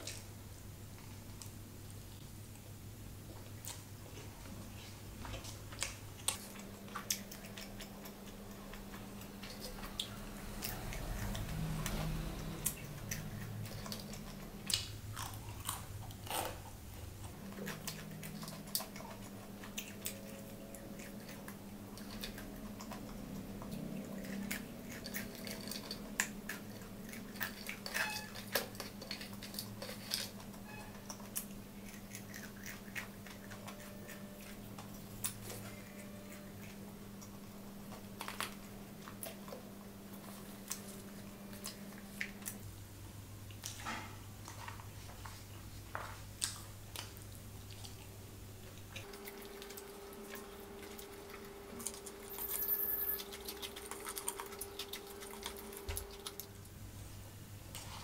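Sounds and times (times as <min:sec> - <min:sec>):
steady low hum: 0:00.0 - 0:58.0
chewing and biting crispy food: 0:05.2 - 0:42.6, 0:53.2 - 0:56.6.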